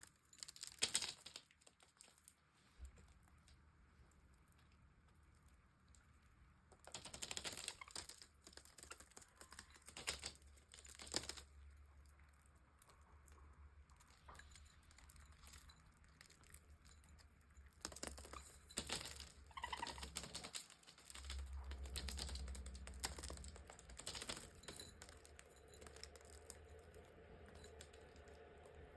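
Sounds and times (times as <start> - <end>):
budgerigar clicking and scratching: 6.8 - 11.5, 17.7 - 27.0.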